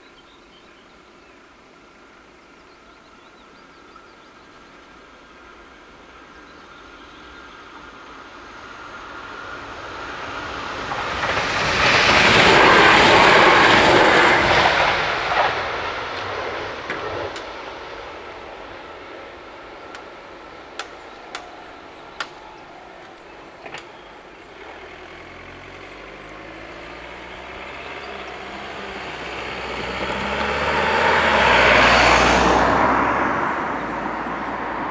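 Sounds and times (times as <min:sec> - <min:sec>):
electric train passing: 0:03.9 - 0:34.9
car driving past: 0:07.8 - 0:34.9
crossing barriers clicking: 0:19.8 - 0:30.2.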